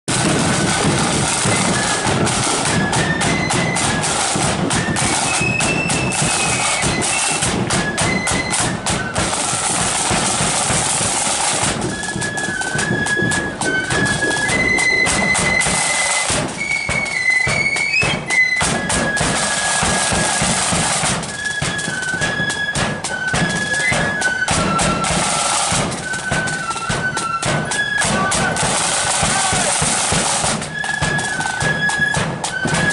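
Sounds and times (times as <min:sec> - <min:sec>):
bass drum beats: 0:00.1 - 0:21.3
flutes playing march melody: 0:00.1 - 0:32.9
side drum strokes: 0:00.1 - 0:32.9.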